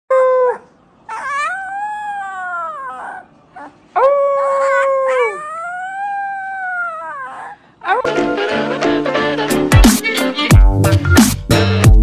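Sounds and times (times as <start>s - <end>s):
puppy howling: 0.1s - 8.1s.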